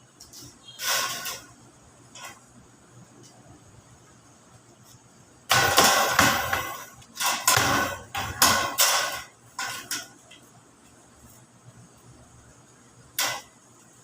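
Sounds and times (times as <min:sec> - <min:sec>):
hammer striking sheet metal: 0:00.7 - 0:01.5, 0:05.5 - 0:10.2, 0:13.2 - 0:13.6.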